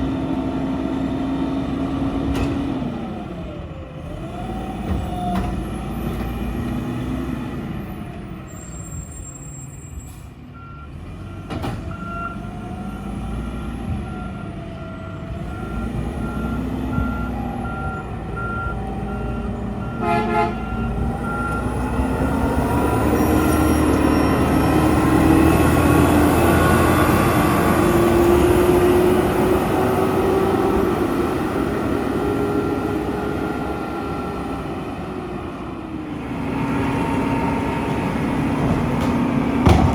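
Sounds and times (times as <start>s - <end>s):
garbage truck diesel engine revving: 0.0s - 8.4s, 10.8s - 39.9s
reversing beeper: 14.1s - 29.0s
horn toot: 19.9s - 20.8s.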